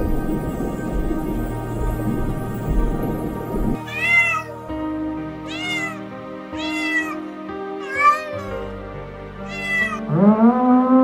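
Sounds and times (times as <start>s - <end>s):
soft background music: 0.0s - 11.0s
cat meowing: 3.8s - 4.7s, 5.4s - 8.6s, 9.4s - 10.0s.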